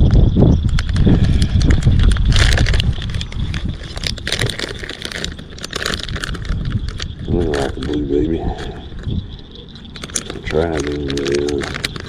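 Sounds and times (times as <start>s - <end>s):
wind buffeting microphone: 0.0s - 12.0s
handling clicks and rustling: 1.6s - 12.0s.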